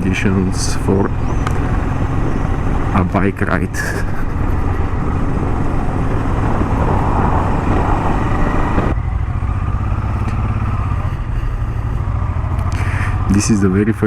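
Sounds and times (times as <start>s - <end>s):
motorcycle engine running: 0.0s - 14.0s
wind noise on microphone: 3.8s - 9.0s.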